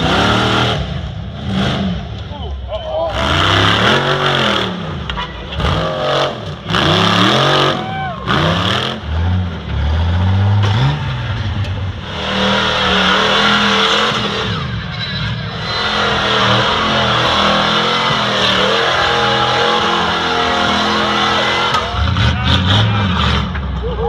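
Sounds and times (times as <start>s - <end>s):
truck engine revving: 0.0s - 24.0s.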